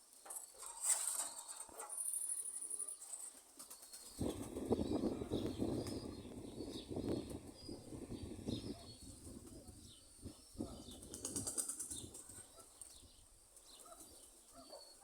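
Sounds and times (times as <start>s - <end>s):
faint bird chirps: 1.4s - 15.0s
pigeon wings flapping: 10.9s - 12.5s.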